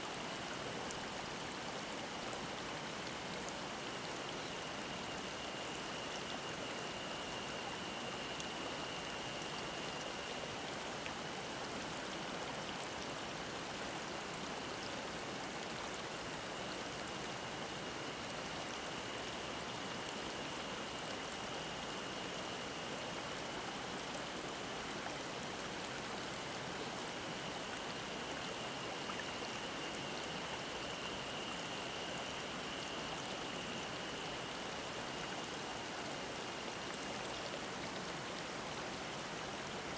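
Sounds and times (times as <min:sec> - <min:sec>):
stream babbling over rocks: 0:00.1 - 0:39.9
cicada high drone: 0:27.2 - 0:37.4.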